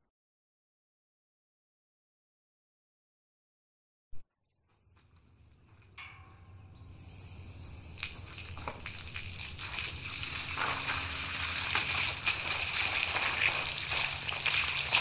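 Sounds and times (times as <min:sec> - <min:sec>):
water sloshing with crackling clicks: 0:08.0 - 0:15.0.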